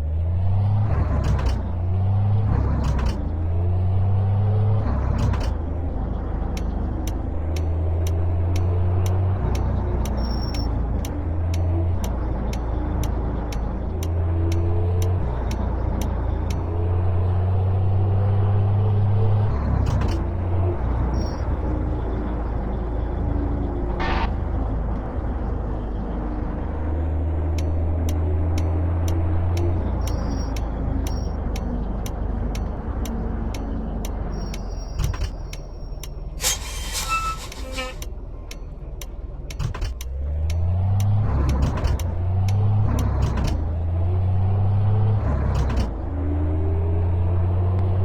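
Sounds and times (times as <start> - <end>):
turn signal ticking: 6.4 - 16.8, 27.6 - 36.4, 38.0 - 43.6.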